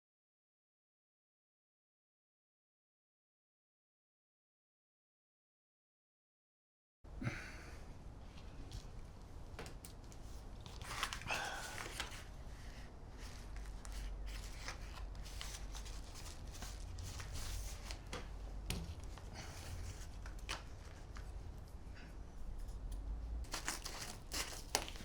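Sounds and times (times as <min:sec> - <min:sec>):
packaging rustling: 0:09.6 - 0:21.3, 0:23.5 - 0:25.0
packaging tearing: 0:10.6 - 0:12.3, 0:23.5 - 0:25.0.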